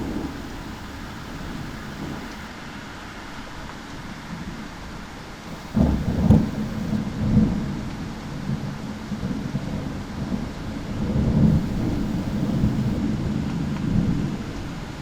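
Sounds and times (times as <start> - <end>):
thunder clap and rumble: 0.0 - 2.5, 5.5 - 7.7, 11.0 - 14.4
steady rain: 0.0 - 15.0.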